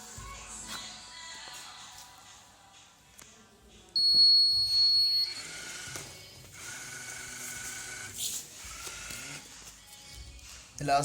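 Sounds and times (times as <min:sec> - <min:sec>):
electronic buzzer beep: 0:04.0 - 0:05.9.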